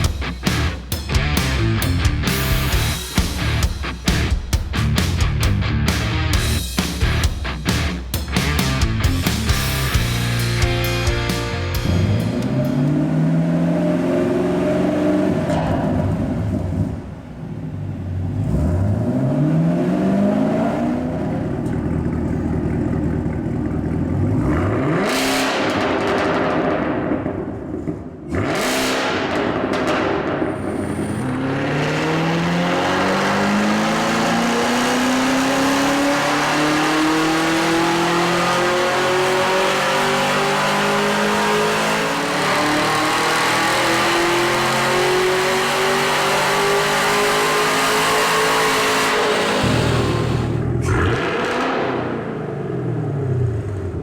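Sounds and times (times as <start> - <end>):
car engine revving on a dyno: 12.1 - 17.5, 18.1 - 21.6, 23.9 - 54.0.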